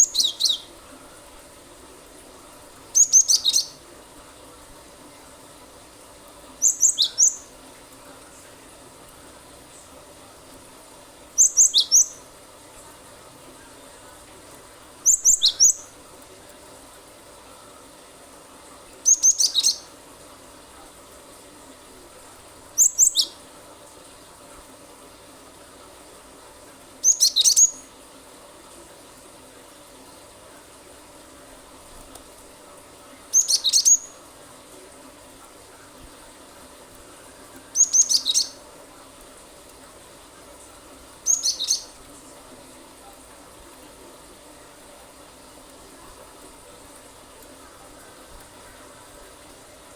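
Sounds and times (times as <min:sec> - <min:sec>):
bird high-pitched calls: 0:00.0 - 0:00.7, 0:02.9 - 0:03.8, 0:06.6 - 0:07.5, 0:11.4 - 0:12.2, 0:15.0 - 0:16.0, 0:19.0 - 0:19.9, 0:22.8 - 0:23.4, 0:27.0 - 0:27.9, 0:33.3 - 0:34.2, 0:37.8 - 0:38.6, 0:41.2 - 0:42.0.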